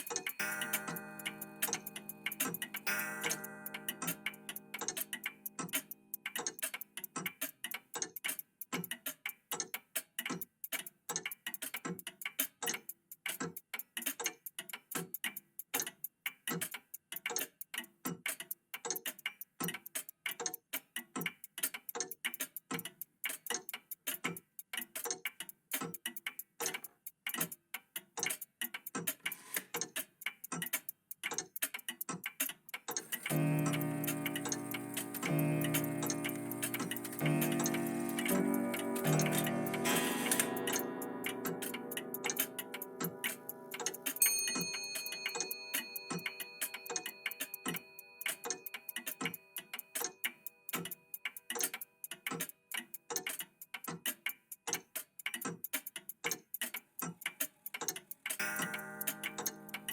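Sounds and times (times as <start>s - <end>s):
mechanical clocks ticking: 0.0s - 59.9s
sustained musical tone: 33.3s - 44.2s.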